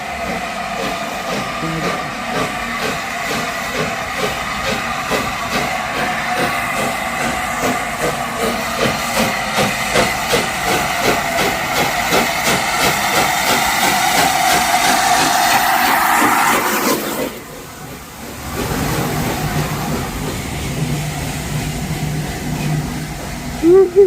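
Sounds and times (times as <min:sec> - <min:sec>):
loud steam hiss: 0:00.0 - 0:23.8
steam engine chuffing: 0:00.0 - 0:24.0.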